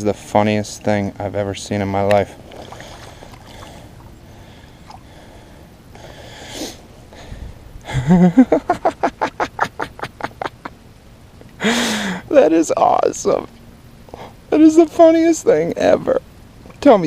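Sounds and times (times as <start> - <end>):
man laughing hard: 7.8 - 10.8.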